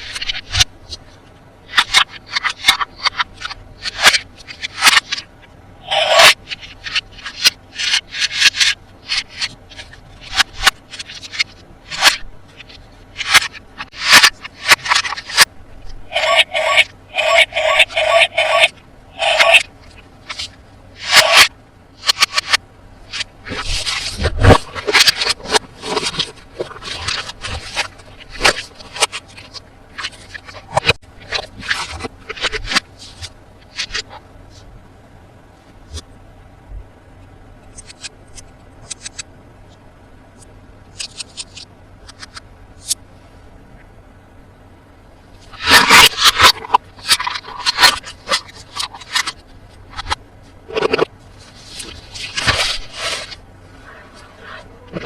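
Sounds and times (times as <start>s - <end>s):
hands scraping toy packaging: 1.7s - 15.5s, 16.1s - 34.2s, 45.5s - 55.0s.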